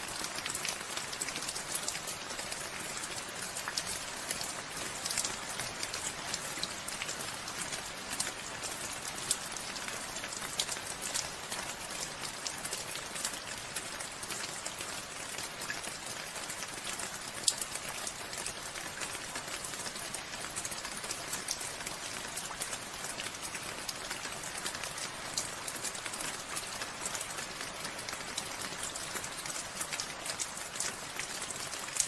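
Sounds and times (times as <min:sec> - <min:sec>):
rain falling: 0:00.0 - 0:32.0
raindrops ticking close by: 0:00.0 - 0:32.0.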